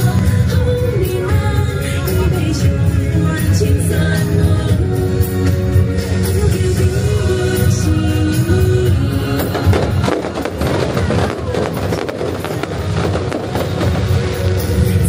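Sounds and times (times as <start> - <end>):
music with held melody: 0.0 - 15.0
fireworks crackling: 7.4 - 15.0.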